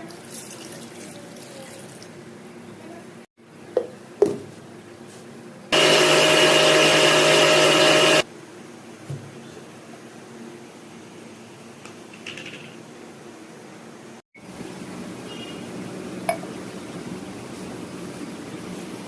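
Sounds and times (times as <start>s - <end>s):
electric blender running: 5.8s - 8.3s.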